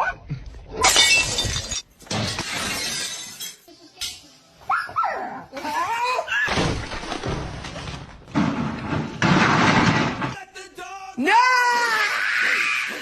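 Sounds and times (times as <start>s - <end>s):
glass shattering: 0.8s - 4.2s.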